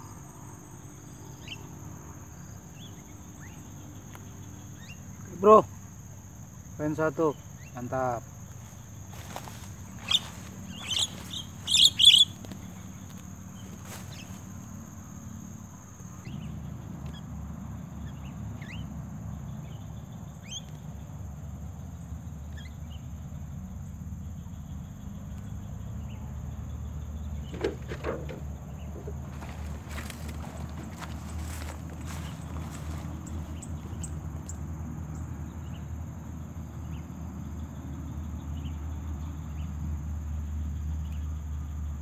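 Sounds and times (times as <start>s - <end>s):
high insect whine: 0.0s - 42.0s
birds chirping: 1.3s - 15.2s, 27.2s - 35.9s.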